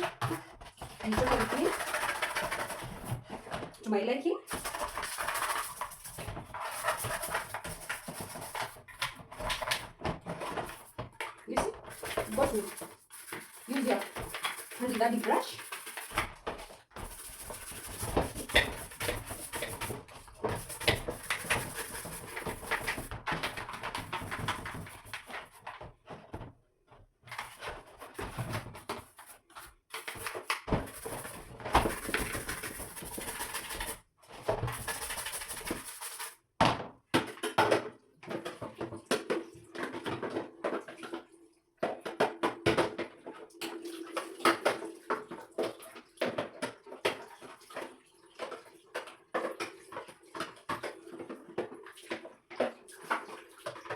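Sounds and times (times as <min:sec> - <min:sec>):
brush scrubbing: 0:00.0 - 0:03.6, 0:04.5 - 0:25.8, 0:27.3 - 0:36.4.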